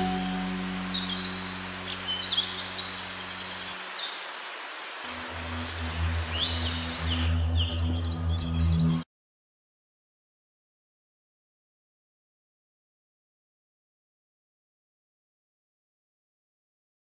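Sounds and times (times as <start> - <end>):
low musical drone: 0.0 - 9.0
songbirds chirping: 0.0 - 9.0.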